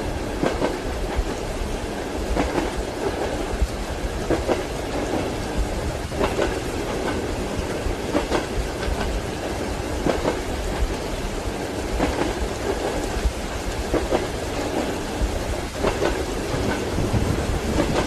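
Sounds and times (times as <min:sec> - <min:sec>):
steady rain: 0:00.0 - 0:18.0
train wheels clacking over rail joints: 0:00.3 - 0:01.4, 0:02.2 - 0:11.1, 0:11.9 - 0:18.0.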